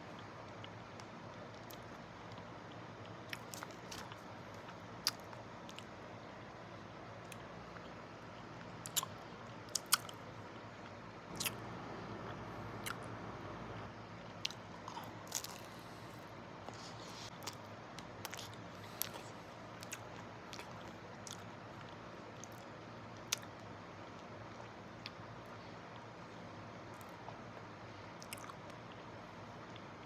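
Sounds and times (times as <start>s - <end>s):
close-up eating: 3.0s - 5.9s, 8.8s - 22.7s, 28.2s - 28.8s
chewing: 3.3s - 5.9s, 8.8s - 10.2s, 11.3s - 11.7s, 14.4s - 17.6s, 18.2s - 22.7s, 28.2s - 28.8s
steady low hiss: 3.8s - 20.5s
chocolate shell crunching: 14.4s - 16.2s.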